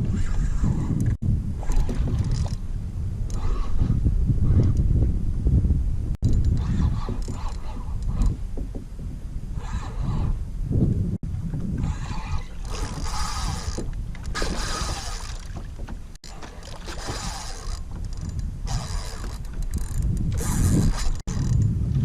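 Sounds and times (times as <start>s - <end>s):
water splashing and sloshing: 0.0s - 4.8s, 11.2s - 22.0s
low wind rumble on microphone: 0.0s - 22.0s.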